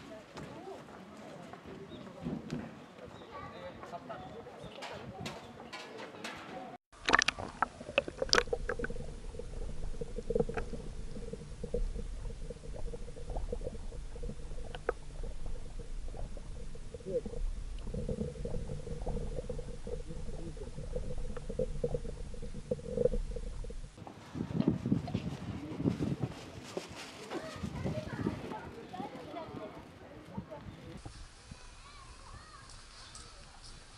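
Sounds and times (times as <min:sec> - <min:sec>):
muffled underwater rumble: 0:07.0 - 0:24.0
underwater clicks and knocks: 0:07.0 - 0:24.0.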